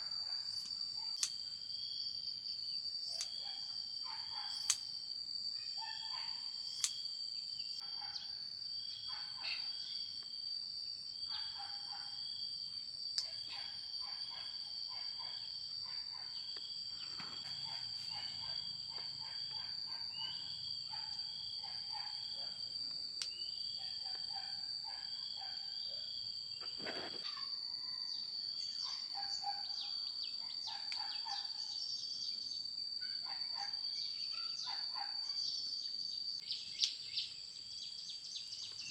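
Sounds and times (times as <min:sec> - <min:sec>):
lower insect chirring call: 0:00.0 - 0:10.4, 0:23.2 - 0:38.9
insects chirring high: 0:00.0 - 0:10.6, 0:11.2 - 0:38.9.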